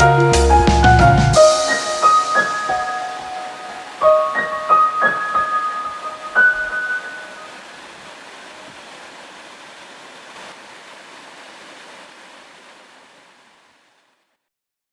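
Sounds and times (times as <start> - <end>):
waterfall rushing: 0.6 - 14.2.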